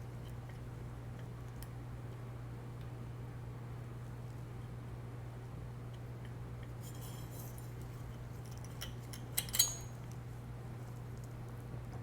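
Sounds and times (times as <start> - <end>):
steady low hum: 0.0 - 12.0
metallic clicks and clinks: 8.5 - 10.2.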